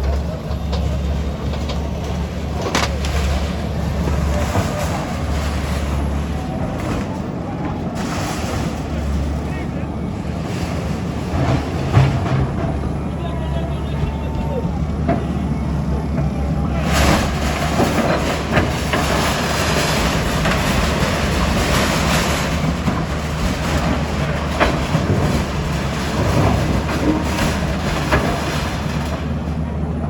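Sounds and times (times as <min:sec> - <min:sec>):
heavy engine running: 0:00.0 - 0:30.0
rattling and clatter: 0:07.9 - 0:30.0.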